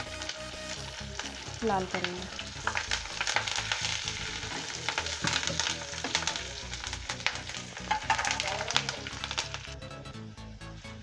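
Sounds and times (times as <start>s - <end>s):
leaves sizzling in hot oil: 0.0s - 9.8s
spatula stirring: 2.4s - 9.5s.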